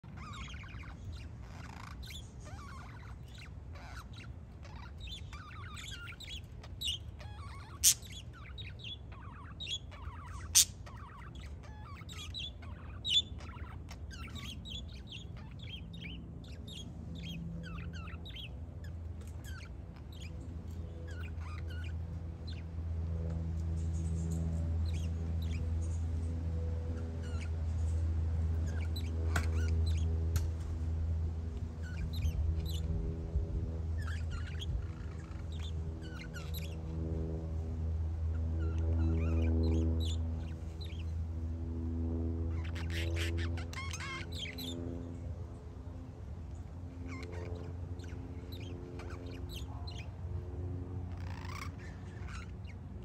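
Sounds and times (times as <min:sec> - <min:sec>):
low steady hum: 0:00.0 - 0:53.0
small birds chirping: 0:00.0 - 0:53.0.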